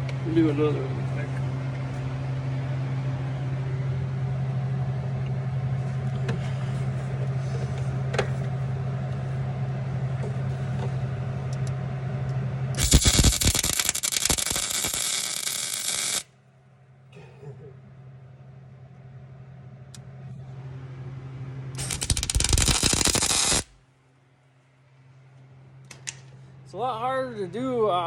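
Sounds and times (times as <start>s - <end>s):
steady low hum: 0.0s - 28.0s
welding arc crackling: 12.8s - 16.3s, 21.8s - 23.8s.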